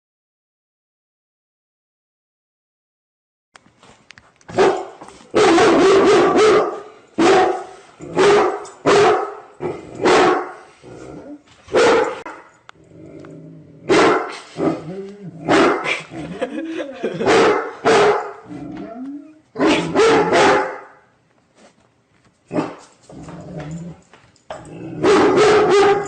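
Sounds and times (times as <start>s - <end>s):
dog barking: 4.5s - 10.6s, 11.7s - 12.5s, 13.9s - 14.8s, 15.5s - 15.9s, 17.2s - 18.4s, 19.6s - 21.0s, 22.5s - 22.8s, 25.0s - 26.0s.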